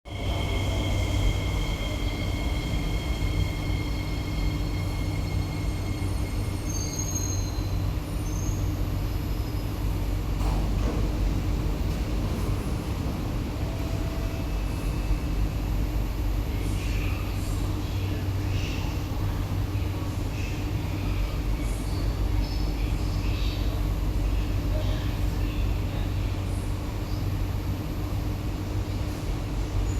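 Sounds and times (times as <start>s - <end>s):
metro train rumble: 0.0s - 29.9s.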